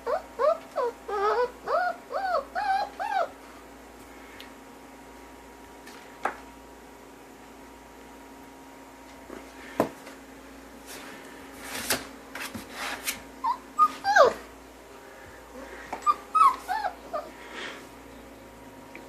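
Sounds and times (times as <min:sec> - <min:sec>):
puppy whimpering: 0:00.0 - 0:03.4, 0:13.4 - 0:14.5, 0:15.6 - 0:17.4.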